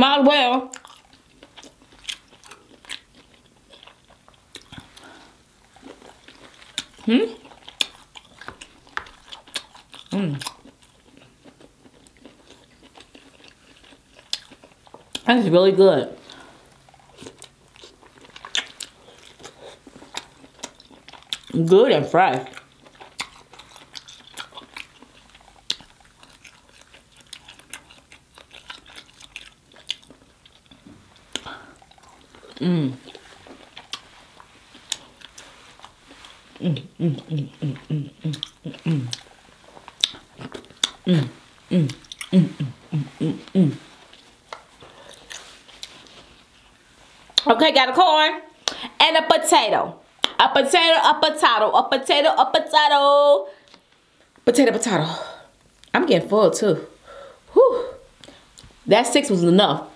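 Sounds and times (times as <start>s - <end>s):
close-up chewing: 0.7s - 15.3s, 16.1s - 47.5s
wet mouth clicks: 36.8s - 39.3s, 48.6s - 48.9s.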